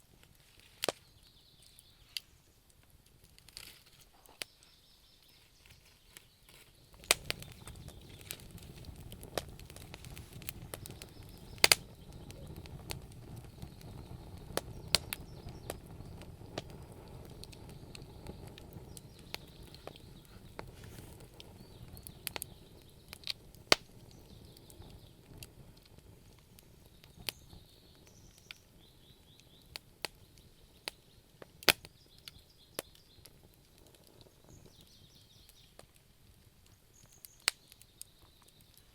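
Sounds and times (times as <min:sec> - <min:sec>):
wood fire crackling and popping: 0:00.0 - 0:38.9
low rush of flame: 0:06.8 - 0:37.1.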